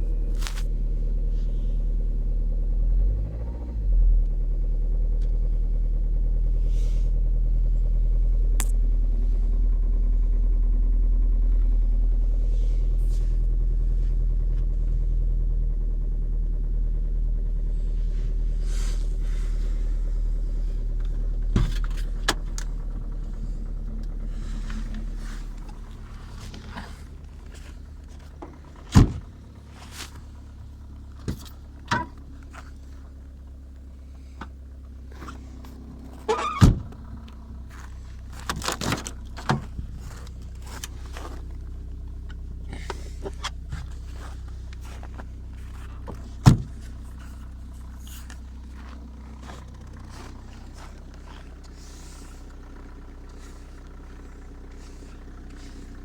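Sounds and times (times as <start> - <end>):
diesel engine idling: 0.0 - 56.0
sharp thunks and clicks: 19.0 - 33.1, 35.1 - 55.8.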